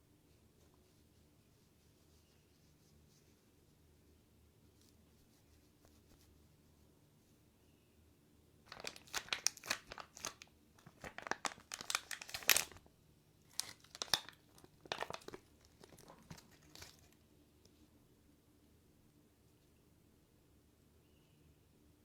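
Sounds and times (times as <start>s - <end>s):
plastic packaging crinkling and tearing: 8.7s - 12.9s, 13.5s - 17.2s.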